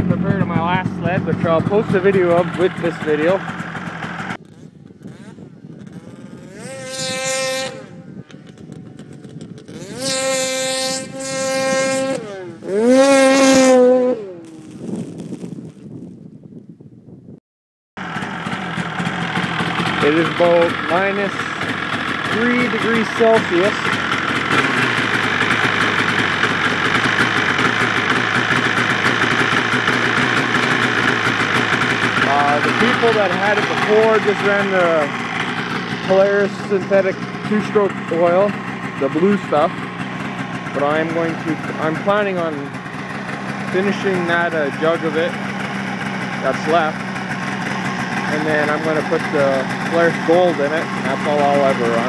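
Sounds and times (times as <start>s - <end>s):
snowmobile engine idling and revving: 0.0s - 15.9s, 18.0s - 52.0s.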